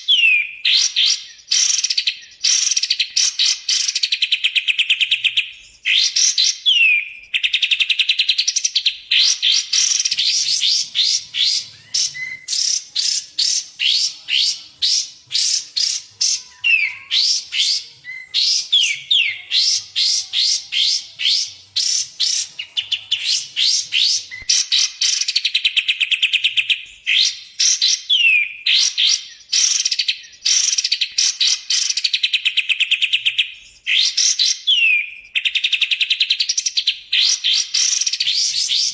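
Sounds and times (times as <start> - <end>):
songbird rattling high chirps: 7.5 - 17.8
downward-slurred whistles: 8.4 - 26.4.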